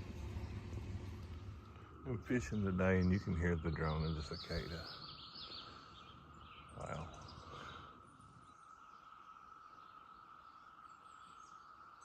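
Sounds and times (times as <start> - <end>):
cicadas droning: 0.0 - 12.0
faint bird chirps: 0.2 - 12.0.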